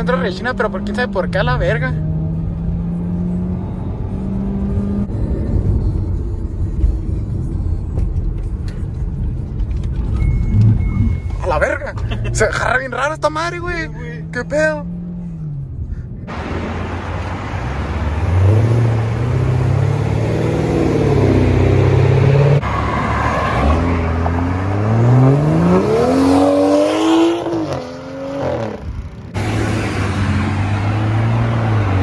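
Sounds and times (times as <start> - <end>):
car engine accelerating: 12.0 - 32.0.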